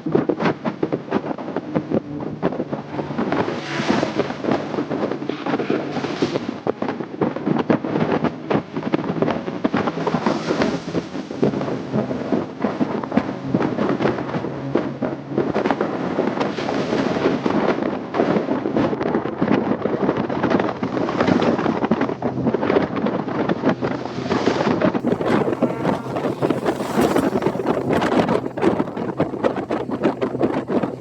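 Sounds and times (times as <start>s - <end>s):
crackling exhaust pops: 25.0s - 31.0s
motorcycle engine drone: 25.0s - 31.0s.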